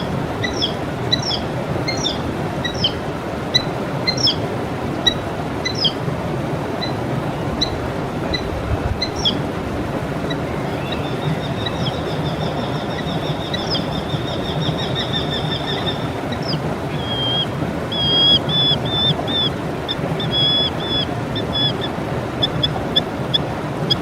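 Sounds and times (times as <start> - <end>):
songbird singing trills and chirps: 0.0 - 3.0, 3.6 - 4.4, 5.0 - 6.0, 6.8 - 9.6, 10.2 - 24.0
steady rushing noise: 0.0 - 24.0.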